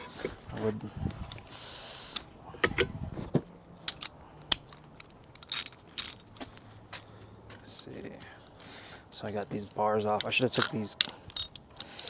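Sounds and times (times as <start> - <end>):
metallic clicks from tools: 3.8 - 7.1, 9.5 - 12.0.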